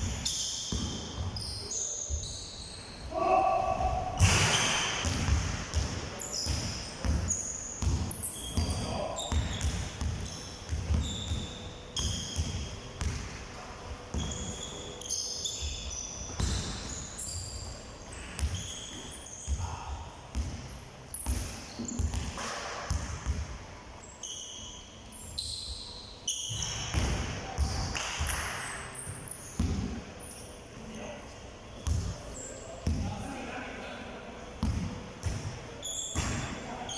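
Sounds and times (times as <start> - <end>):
basketballs bouncing on a court: 0.0 - 1.4, 3.7 - 13.4, 14.0 - 14.7, 15.5 - 17.1, 18.3 - 23.6, 26.5 - 30.0, 31.8 - 32.2, 32.8 - 33.2, 34.6 - 36.6
shoes squeaking on floor: 0.0 - 3.1, 6.2 - 12.8, 14.1 - 19.8, 21.1 - 22.2, 24.0 - 26.9, 35.8 - 36.9.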